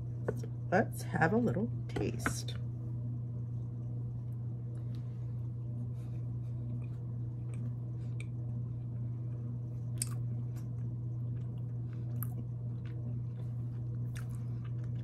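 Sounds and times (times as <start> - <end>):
low hum: 0.0 - 15.0
person chewing: 6.5 - 15.0.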